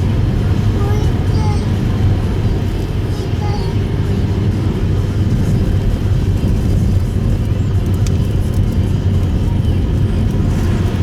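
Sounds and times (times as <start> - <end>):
car road noise on snow: 0.0 - 11.0
low rumble of tyres: 0.0 - 11.0.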